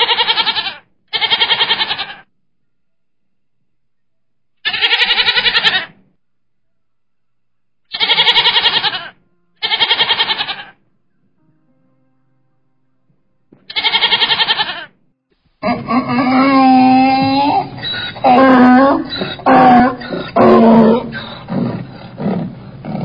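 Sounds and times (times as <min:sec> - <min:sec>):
donkeys braying: 0:15.6 - 0:23.0.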